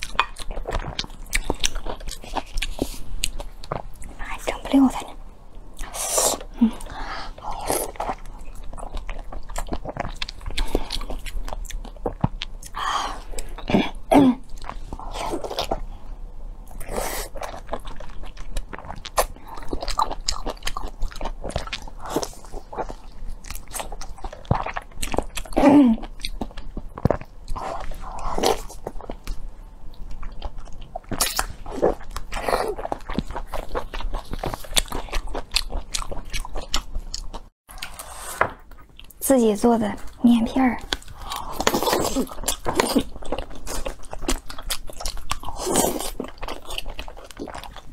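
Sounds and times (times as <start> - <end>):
wet chewing and mouth smacks: 16.7 - 38.0.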